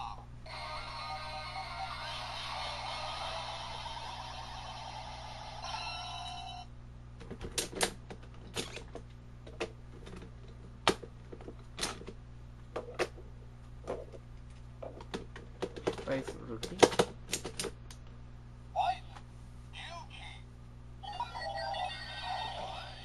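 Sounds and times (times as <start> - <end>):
toy electronic transformation sound: 0.5 - 6.6, 21.1 - 23.0.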